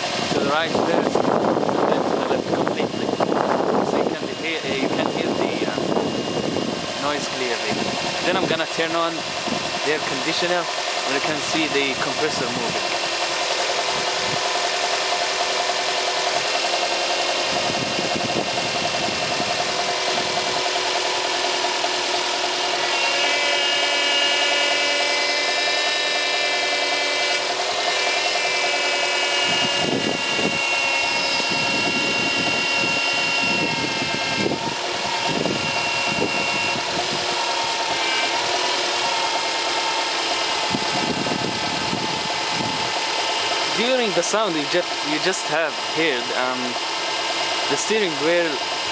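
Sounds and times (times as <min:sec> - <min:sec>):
car engine idling: 0:00.0 - 0:48.9
power steering pump whine: 0:00.0 - 0:48.9.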